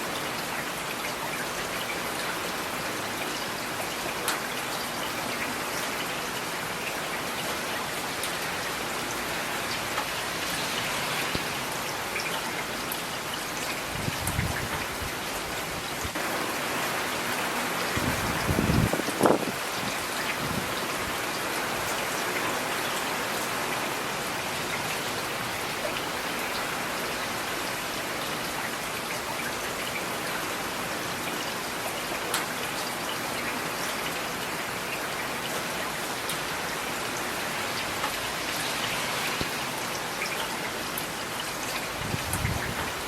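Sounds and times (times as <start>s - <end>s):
steady rain falling: 0.0s - 43.0s.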